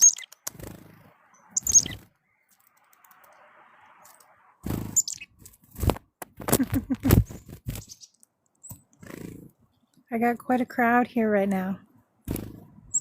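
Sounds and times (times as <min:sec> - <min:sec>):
chickadees calling: 0:00.0 - 0:00.4, 0:01.0 - 0:02.7, 0:04.7 - 0:05.4, 0:07.7 - 0:08.8.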